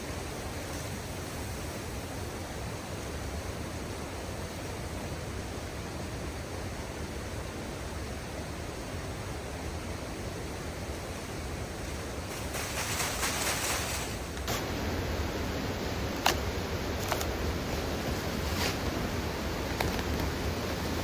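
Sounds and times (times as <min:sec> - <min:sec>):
rustling: 0:11.7 - 0:14.8, 0:17.0 - 0:20.9
outdoor rushing noise: 0:11.8 - 0:14.9.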